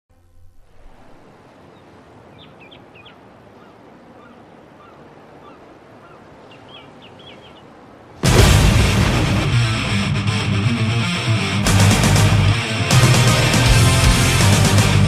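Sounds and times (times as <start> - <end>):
faint bird calls: 0.4 - 8.0
heavy metal electric guitar music: 8.2 - 15.0.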